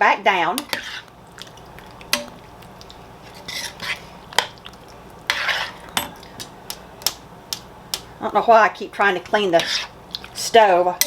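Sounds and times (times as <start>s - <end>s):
spoon stirring in a pot: 0.5s - 8.2s, 9.0s - 11.0s
spoon scraping pot: 0.6s - 1.1s, 3.2s - 4.6s, 5.3s - 6.5s, 9.2s - 10.5s.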